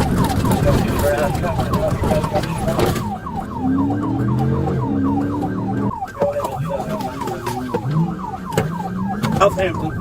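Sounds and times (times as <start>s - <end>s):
car engine revving: 0.0s - 10.0s
police siren yelping: 0.0s - 10.0s
road and wind noise: 0.0s - 10.0s.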